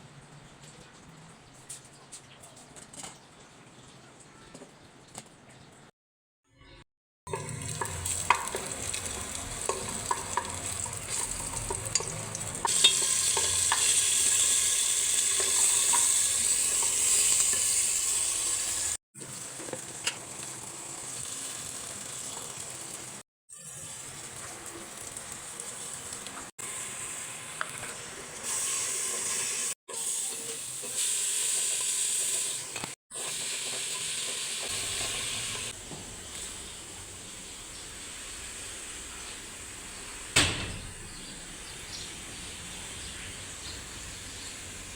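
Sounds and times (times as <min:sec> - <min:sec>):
utensil stirring and tapping pan: 0:07.3 - 0:18.7
food sizzling in a pan: 0:07.3 - 0:40.4, 0:41.1 - 0:44.9.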